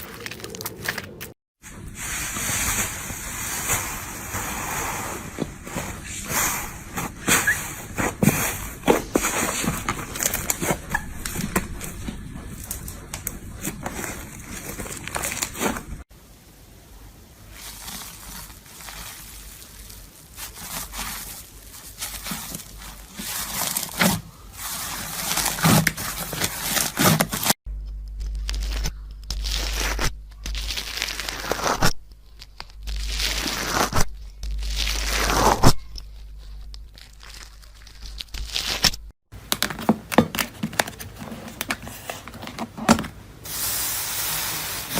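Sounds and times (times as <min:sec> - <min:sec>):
slime crackling and squishing: 0:17.5 - 0:39.1.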